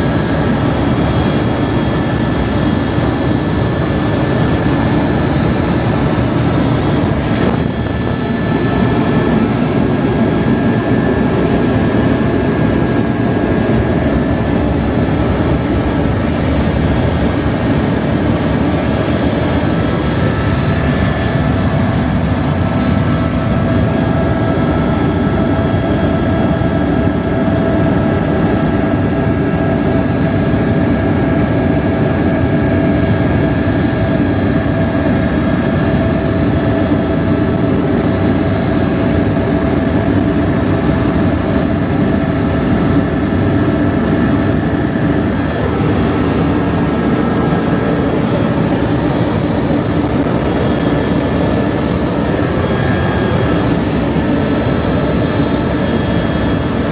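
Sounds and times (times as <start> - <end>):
helicopter rotor and engine drone: 0.0 - 56.9.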